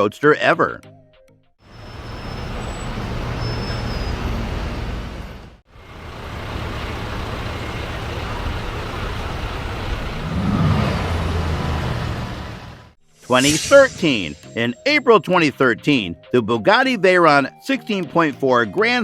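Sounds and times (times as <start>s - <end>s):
car engine and road noise: 1.6s - 13.8s.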